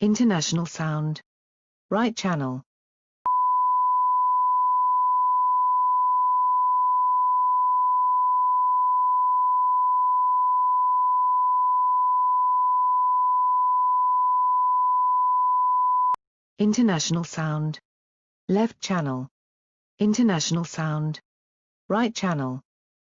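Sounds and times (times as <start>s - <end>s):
sine wave test tone: 3.3s - 16.2s.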